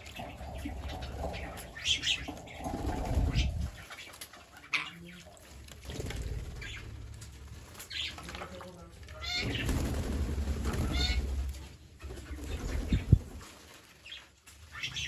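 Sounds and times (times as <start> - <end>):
parrots chirping: 0.0 - 5.3
low rumbling noise: 0.3 - 3.8.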